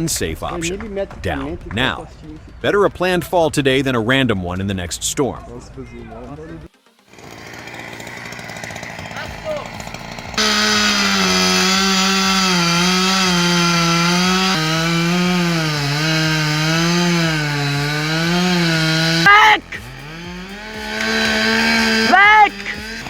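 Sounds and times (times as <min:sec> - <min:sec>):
chainsaw cutting wood: 0:06.8 - 0:23.0.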